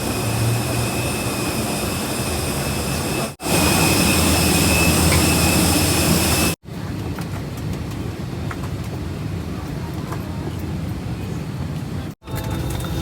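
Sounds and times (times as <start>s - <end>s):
high whine of jet: 0.0s - 6.6s
jet airliner rushing hiss: 0.0s - 6.6s.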